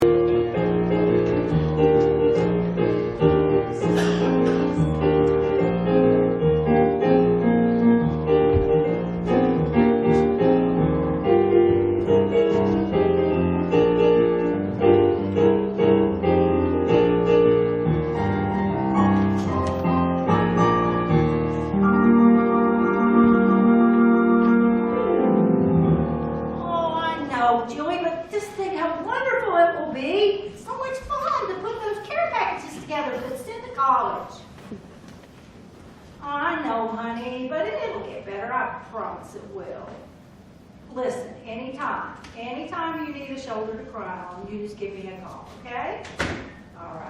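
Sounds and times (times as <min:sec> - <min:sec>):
piano music: 0:00.0 - 0:28.3.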